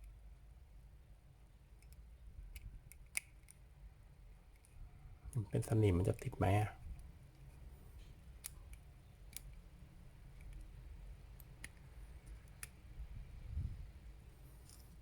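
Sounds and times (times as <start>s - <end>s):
plastic toy parts clicking: 1.8s - 3.6s, 8.2s - 12.9s.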